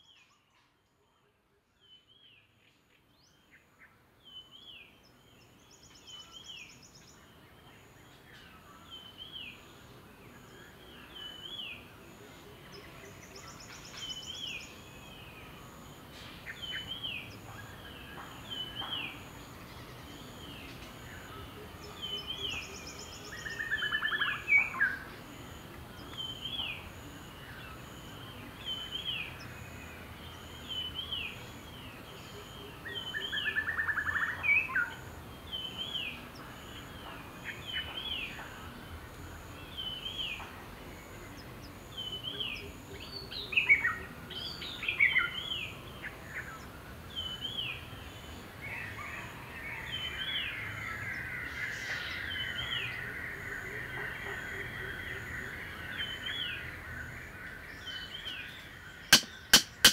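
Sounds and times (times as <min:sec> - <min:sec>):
rattling bird call: 0:59.1 - 0:59.9.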